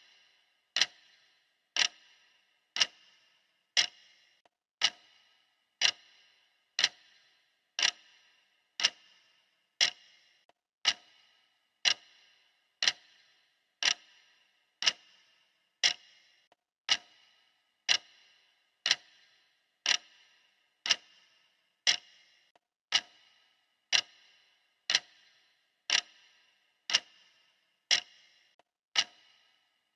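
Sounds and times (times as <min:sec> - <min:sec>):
clock ticking: 0:00.0 - 0:29.9.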